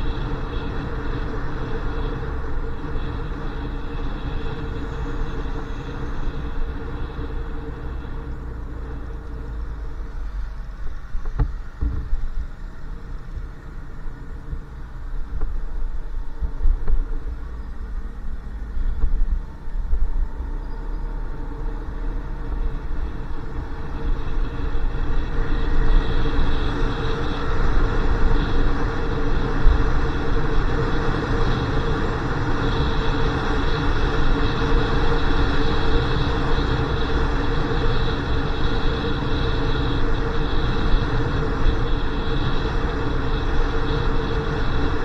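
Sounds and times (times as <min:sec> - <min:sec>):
motorcycle engine running: 0:00.0 - 0:45.0
wind and road noise: 0:00.0 - 0:45.0.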